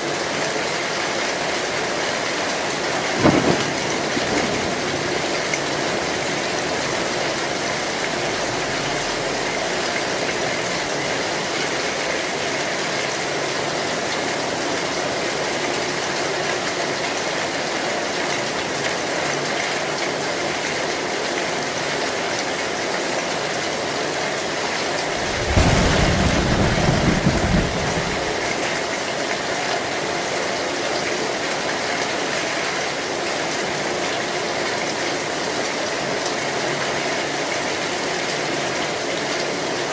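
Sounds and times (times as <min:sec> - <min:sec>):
rain on a metal roof: 0:00.0 - 0:39.9
thunder rumble: 0:02.8 - 0:11.0, 0:25.0 - 0:28.9.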